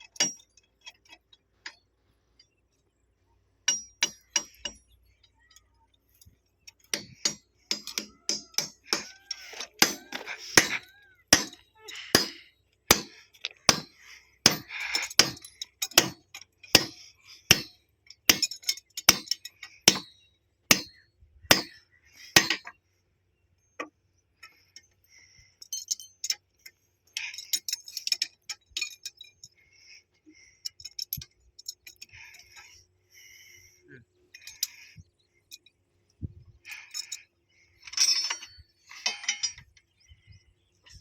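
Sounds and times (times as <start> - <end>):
metal parts rattling: 0.0 - 1.8, 3.6 - 20.1, 25.6 - 29.7, 30.5 - 32.8, 34.3 - 35.8, 36.6 - 39.9
sharp metal clinks: 3.6 - 21.8, 25.6 - 29.6, 34.3 - 35.8, 36.6 - 39.8.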